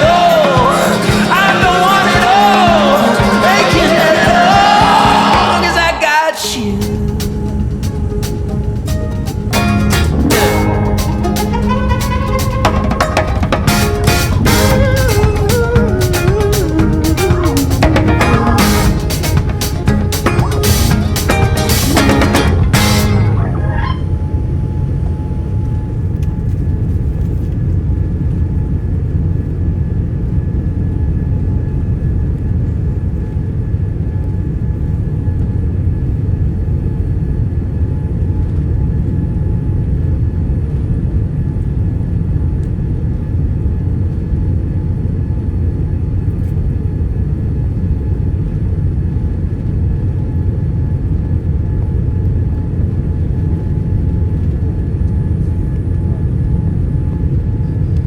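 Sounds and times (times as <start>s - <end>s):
airliner engines rumbling in cabin: 6.7s - 20.1s, 22.5s - 58.0s
faint steady whine: 6.8s - 58.0s.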